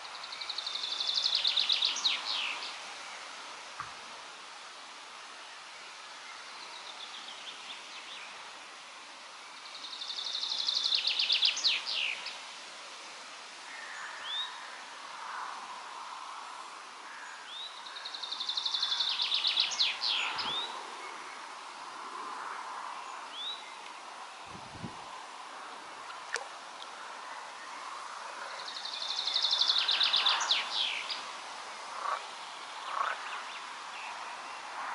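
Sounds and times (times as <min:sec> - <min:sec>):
wind hiss: 0:00.0 - 0:34.9
songbird trilling song: 0:09.6 - 0:12.3, 0:17.5 - 0:21.2, 0:28.5 - 0:31.2.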